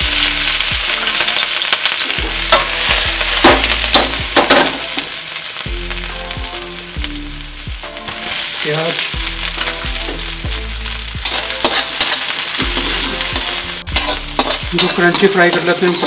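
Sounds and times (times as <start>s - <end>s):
aromatics sizzling in hot oil: 0.0s - 16.0s
sharp oil crackles: 8.2s - 10.2s.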